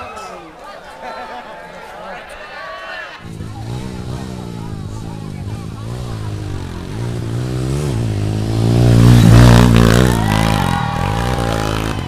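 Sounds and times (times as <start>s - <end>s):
motorcycle engine revving hard: 3.2s - 12.0s.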